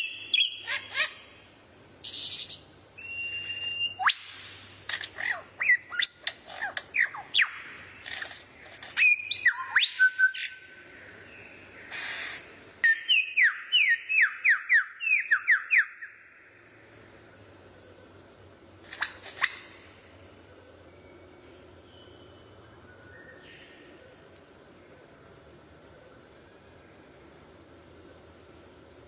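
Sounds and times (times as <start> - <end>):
songbird whistling and chirping: 0.0 - 1.2, 2.0 - 4.6, 5.2 - 10.7, 12.0 - 16.3, 18.9 - 19.9.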